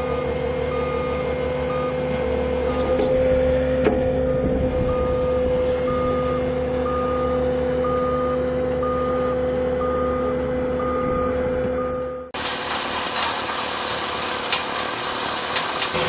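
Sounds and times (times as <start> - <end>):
reversing alarm beeping: 0.0 - 12.4
engine drone: 0.0 - 16.0.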